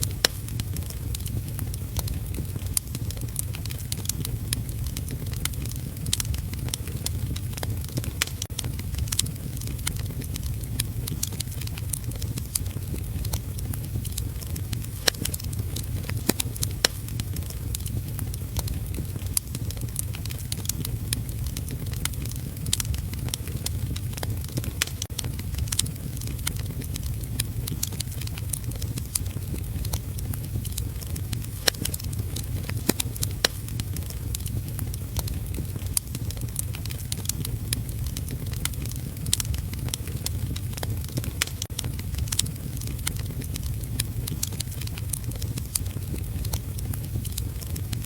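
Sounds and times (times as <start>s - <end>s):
wood fire crackling and popping: 0.0s - 48.0s.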